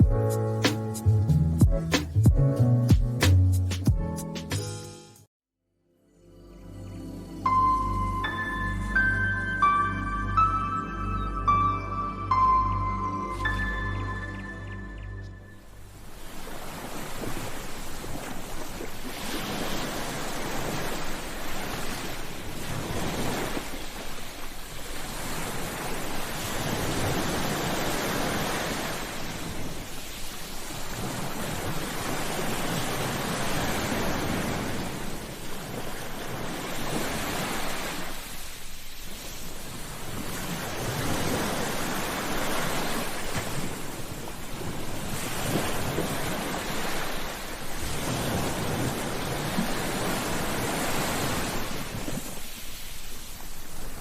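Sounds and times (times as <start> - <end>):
sea waves breaking on beach: 15.8 - 54.0.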